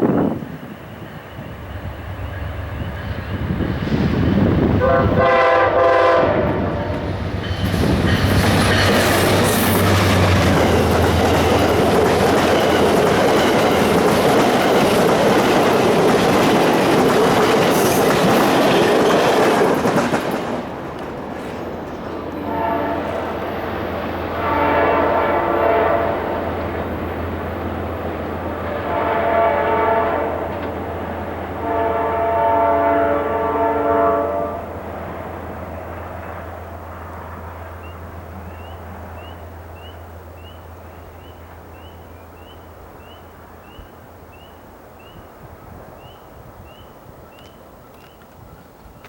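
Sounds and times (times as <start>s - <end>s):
train passing at speed: 0.0s - 49.0s
train horn: 4.7s - 7.2s, 22.3s - 23.6s, 24.2s - 26.7s, 28.5s - 30.8s, 31.4s - 34.8s.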